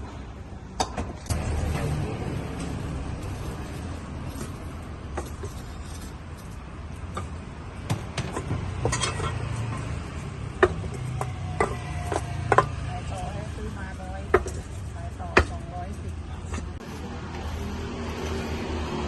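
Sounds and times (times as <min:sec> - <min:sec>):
dishes and utensils clinking: 0:08.0 - 0:12.7.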